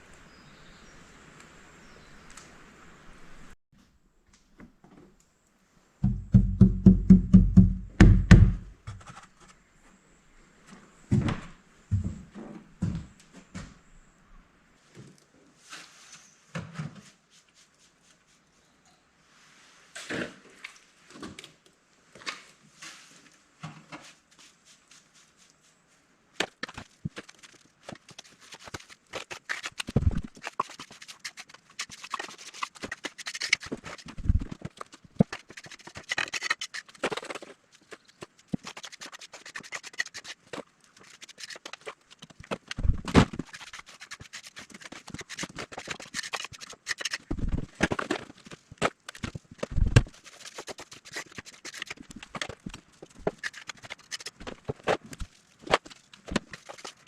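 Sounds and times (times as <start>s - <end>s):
heavy thumps: 6.0s - 9.0s.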